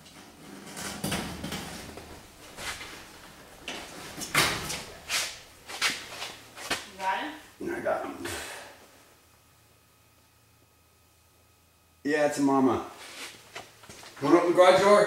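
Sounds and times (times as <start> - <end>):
clunks and scrapes at garage door: 0.0 - 6.8.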